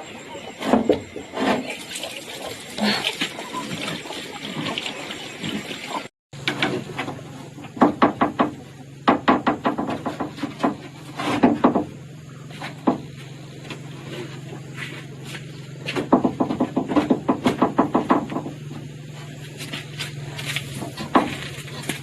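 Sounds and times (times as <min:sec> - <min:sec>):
irregular knocks: 0:15.9 - 0:18.6.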